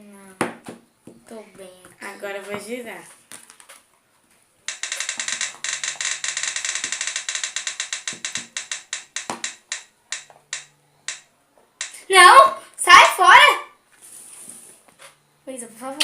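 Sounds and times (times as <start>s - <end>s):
roulette wheel spinning and ticking: 4.7s - 11.2s, 11.8s - 12.1s.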